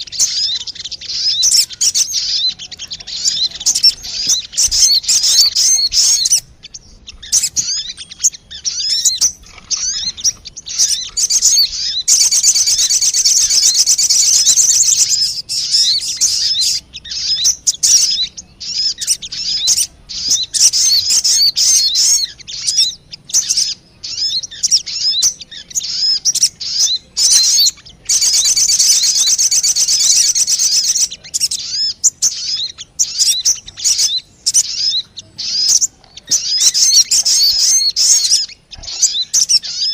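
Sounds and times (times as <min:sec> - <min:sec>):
bird lure call chirps and trills: 0:00.0 - 0:39.9.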